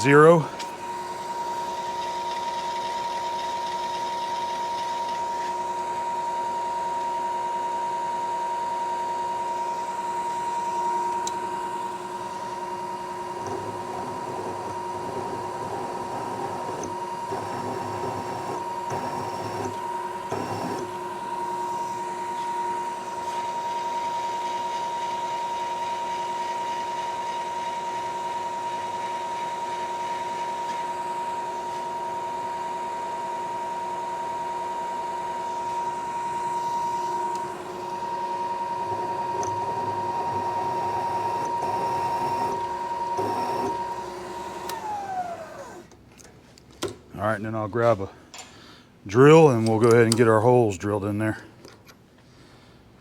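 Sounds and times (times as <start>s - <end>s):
milling machine spindle whine: 0.0s - 45.9s
drill cutting into steel: 13.4s - 22.4s, 35.5s - 45.9s.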